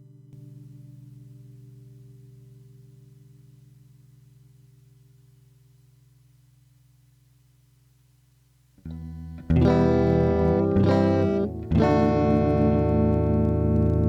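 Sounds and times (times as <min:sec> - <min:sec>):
amp hum: 0:00.4 - 0:14.0
electric guitar chords: 0:08.8 - 0:14.0.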